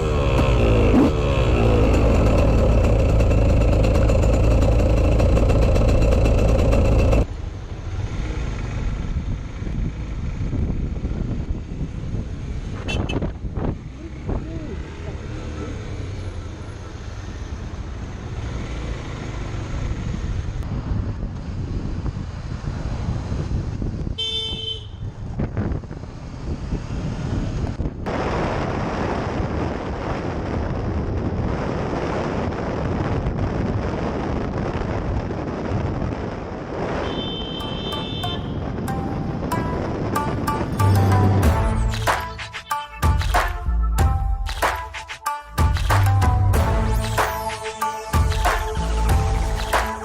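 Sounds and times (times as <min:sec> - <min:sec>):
motorcycle engine: 0:00.0 - 0:20.6, 0:45.6 - 0:50.0
wind rush on microphone: 0:08.9 - 0:14.8, 0:19.9 - 0:40.7
vehicle horn toot: 0:12.8 - 0:13.3, 0:24.2 - 0:25.1, 0:37.0 - 0:38.8.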